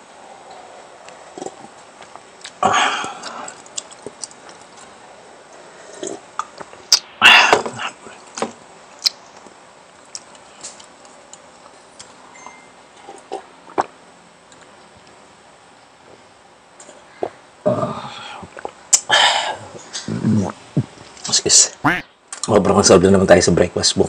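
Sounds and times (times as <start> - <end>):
chewing: 3.5 - 4.8.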